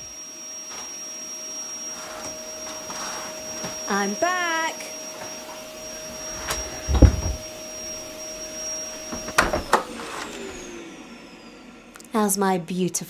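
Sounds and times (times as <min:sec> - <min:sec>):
vacuum cleaner motor whine: 0:00.0 - 0:12.2
dull thump: 0:06.4 - 0:07.4.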